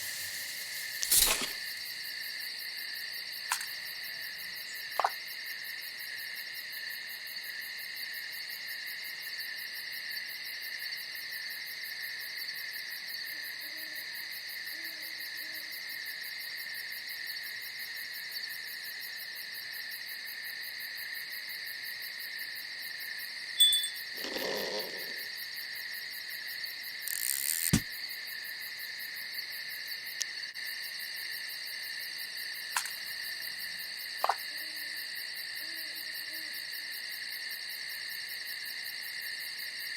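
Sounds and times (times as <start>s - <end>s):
muffled rustle: 0.0s - 2.2s
crickets trilling: 0.0s - 8.5s, 22.1s - 39.9s
owl hooting: 24.1s - 25.3s.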